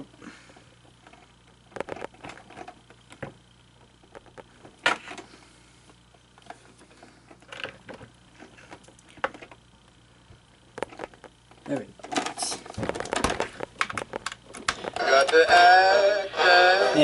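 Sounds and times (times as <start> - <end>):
plastic parts clicking: 10.8 - 15.4.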